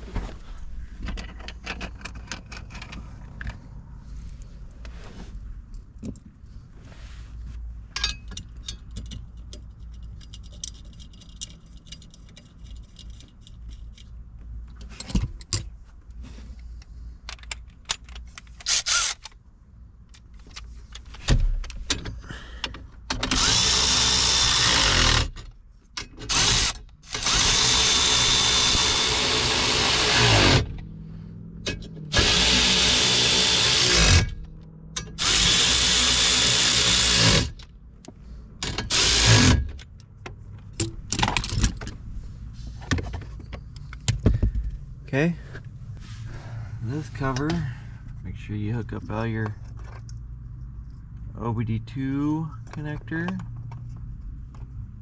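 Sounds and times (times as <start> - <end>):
clicks and knocks from handling parts: 1.0 - 3.7, 7.9 - 19.4, 20.0 - 24.4, 25.1 - 27.6, 36.9 - 42.1, 42.7 - 44.9, 47.2 - 48.2, 49.0 - 51.3, 52.5 - 54.9
power tool whirring: 18.7 - 19.3, 23.2 - 25.4, 26.2 - 30.8, 32.1 - 37.6, 38.6 - 39.7.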